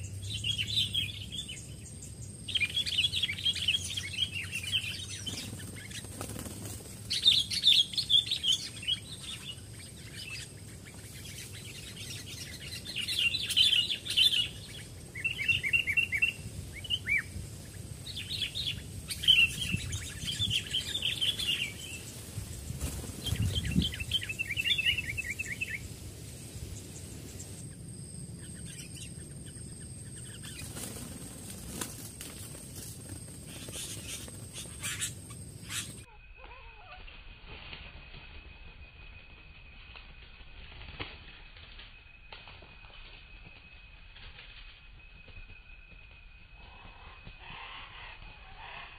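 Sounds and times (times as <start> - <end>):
bulbuls chirping: 0.0 - 26.0, 26.6 - 36.2.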